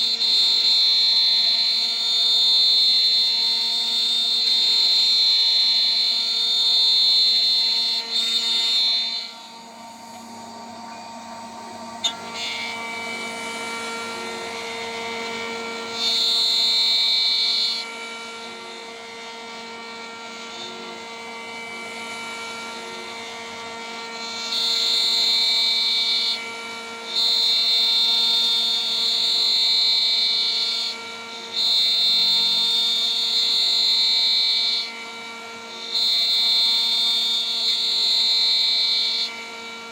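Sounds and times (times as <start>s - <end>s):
router spindle running: 0.0s - 39.9s
high-pitched cutting tone: 6.5s - 17.8s.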